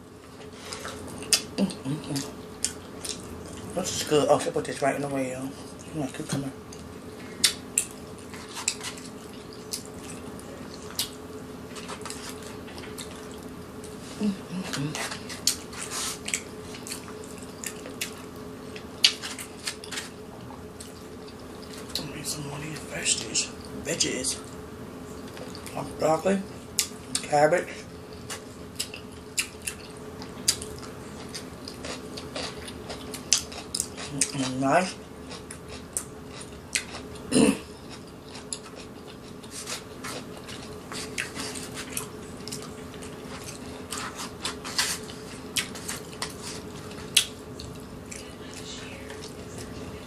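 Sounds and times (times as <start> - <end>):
steady low hum: 0.0 - 50.0
wet chewing with crunches: 0.2 - 4.2, 5.6 - 23.8, 24.4 - 26.0, 26.7 - 50.0
eating clicks and smacks: 28.1 - 34.4, 47.1 - 49.8.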